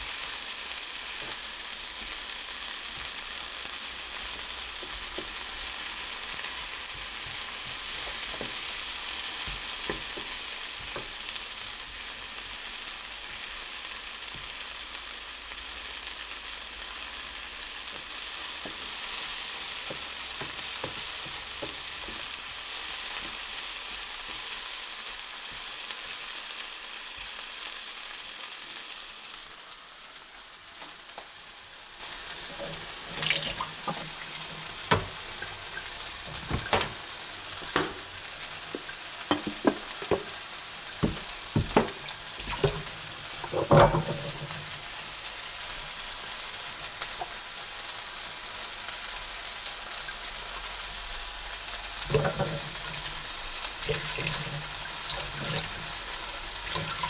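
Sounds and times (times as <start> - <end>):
food sizzling in a frying pan: 0.0 - 57.0
utensil knocking against pan: 32.4 - 40.4, 41.0 - 44.8.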